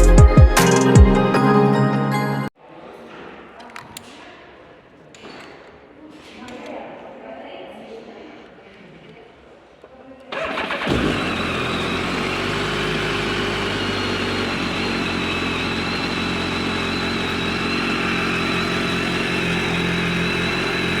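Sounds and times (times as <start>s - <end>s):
motorcycle engine idling: 10.4s - 21.0s.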